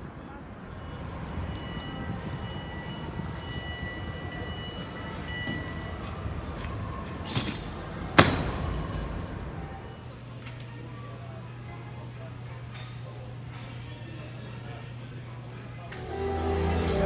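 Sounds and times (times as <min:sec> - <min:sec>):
faint high held tone: 0:15.9 - 0:17.0.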